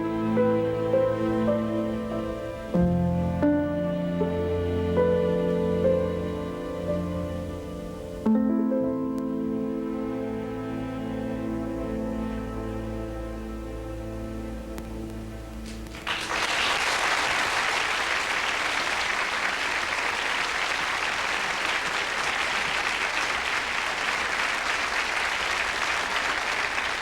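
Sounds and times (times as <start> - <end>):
orchestra chord: 0.0 - 15.9
audience applause: 15.7 - 27.0.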